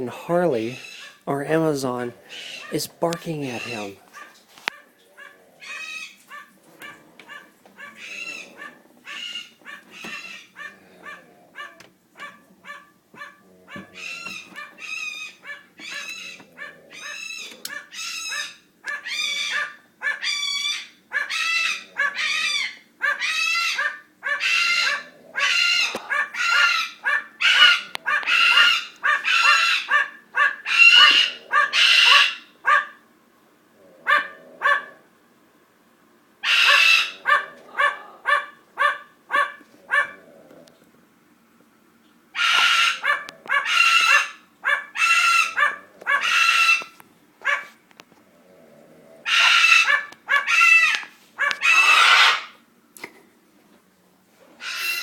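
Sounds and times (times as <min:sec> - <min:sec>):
cockatoo screaming: 0:00.5 - 0:01.3, 0:02.1 - 0:04.3, 0:05.2 - 0:32.9, 0:36.4 - 0:40.2, 0:42.3 - 0:47.6, 0:49.2 - 0:52.6, 0:54.6 - 0:55.0
parrot barking: 0:00.6 - 0:01.3, 0:02.1 - 0:33.0, 0:34.0 - 0:35.0, 0:36.4 - 0:40.2, 0:42.3 - 0:47.8, 0:49.2 - 0:52.6, 0:54.6 - 0:55.0.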